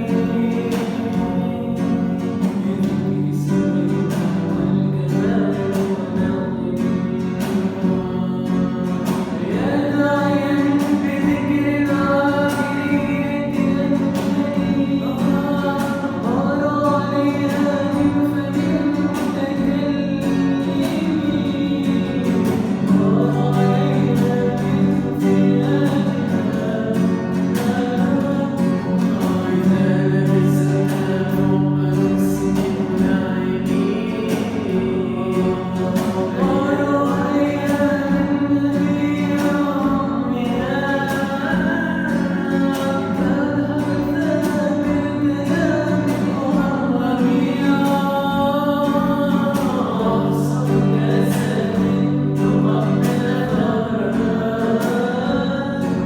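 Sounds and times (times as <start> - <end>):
person singing melodic song: 0.0 - 56.0.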